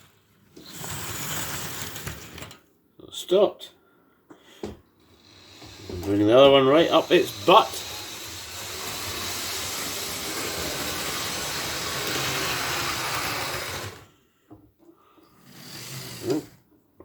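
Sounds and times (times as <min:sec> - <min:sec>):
model train motor whirring: 0:00.6 - 0:02.5, 0:05.1 - 0:14.1, 0:15.4 - 0:16.6.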